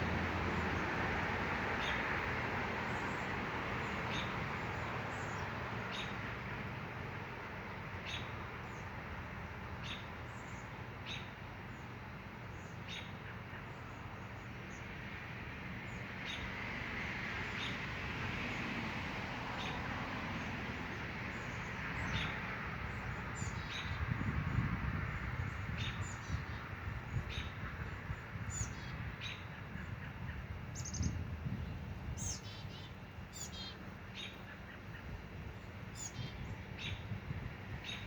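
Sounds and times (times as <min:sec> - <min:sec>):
songbird chirping: 0:32.2 - 0:37.0.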